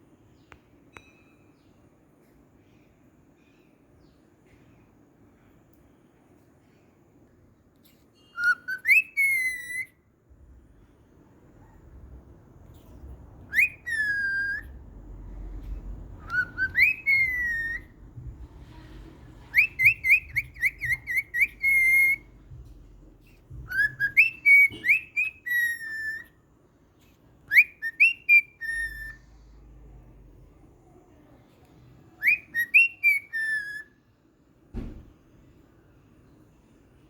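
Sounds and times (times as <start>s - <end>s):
cockatiel whistling: 8.2s - 10.0s, 12.8s - 14.8s, 15.7s - 22.6s, 23.2s - 26.4s, 27.5s - 29.4s, 32.2s - 33.9s.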